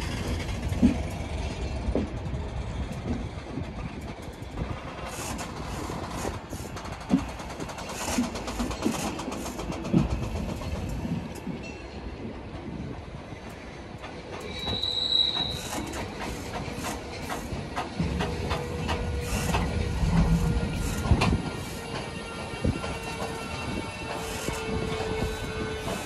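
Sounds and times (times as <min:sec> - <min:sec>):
train wheels clicking over rail joints: 0:00.0 - 0:26.0
high wheel squeal: 0:14.5 - 0:16.4.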